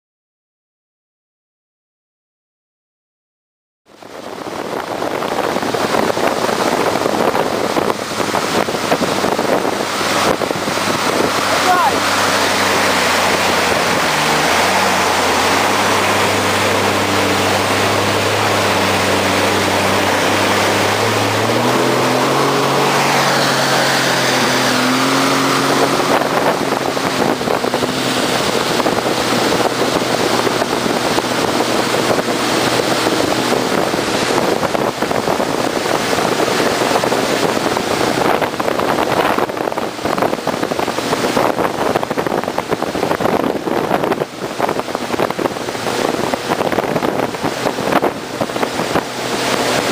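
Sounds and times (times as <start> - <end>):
jet ski engine running: 3.9 - 49.9
wind buffeting microphone: 3.9 - 49.9
water spray: 4.2 - 49.9.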